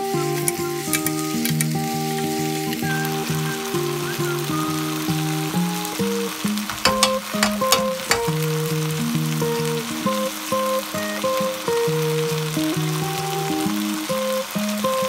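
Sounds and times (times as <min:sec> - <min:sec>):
food sizzling in a wok: 0:00.0 - 0:15.0
utensils clicking on pan: 0:00.9 - 0:01.7, 0:06.6 - 0:08.5.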